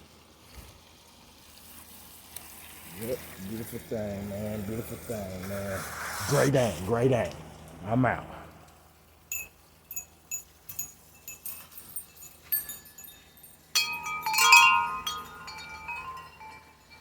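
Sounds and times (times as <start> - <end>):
wind chimes ringing: 9.3 - 17.0.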